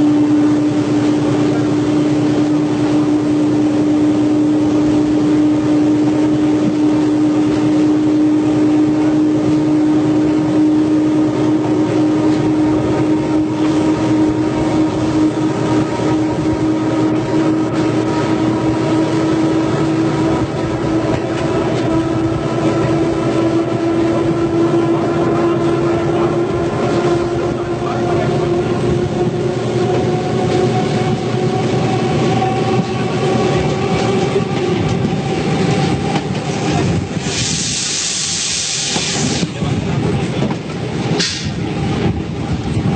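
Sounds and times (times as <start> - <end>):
diesel train engine drone: 0.0 - 42.9.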